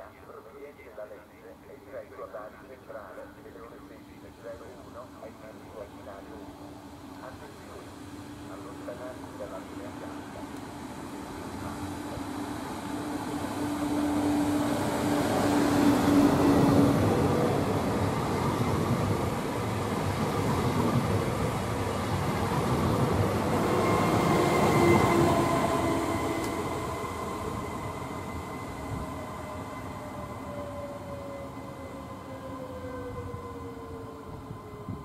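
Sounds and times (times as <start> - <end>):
train wheels rushing on rail: 4.2 - 35.0.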